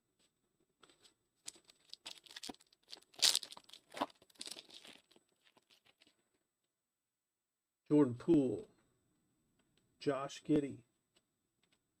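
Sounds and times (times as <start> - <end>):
trading cards rustling: 0.9 - 6.1.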